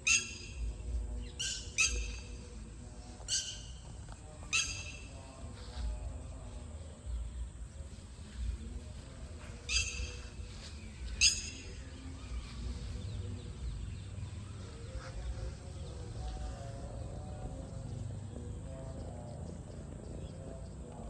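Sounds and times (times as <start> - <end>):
bird sharp calls: 0.0 - 2.6, 3.2 - 5.5, 9.4 - 17.2
low outdoor rumble: 0.0 - 21.0.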